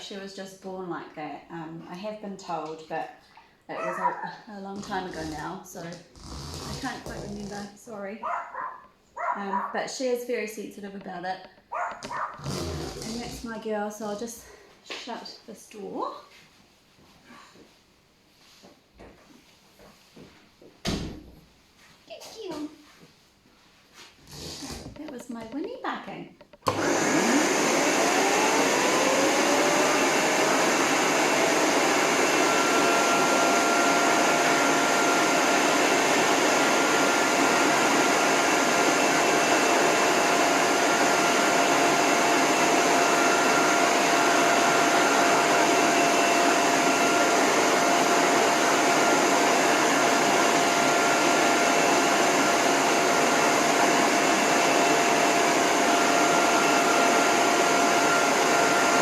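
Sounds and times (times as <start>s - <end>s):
hose dryer motor whine: 11.7s - 13.6s, 26.6s - 59.0s.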